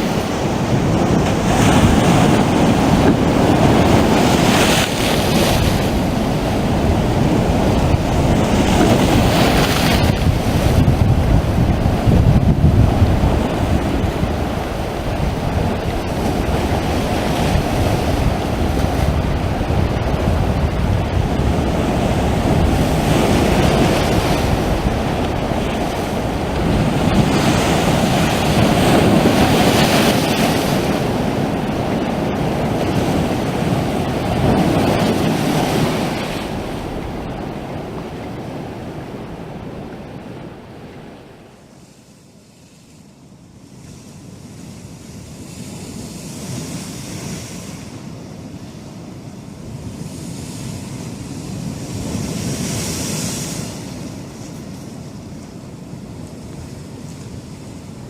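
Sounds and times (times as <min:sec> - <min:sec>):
sea waves washing onto shore: 0:00.0 - 0:42.0, 0:43.6 - 0:58.0.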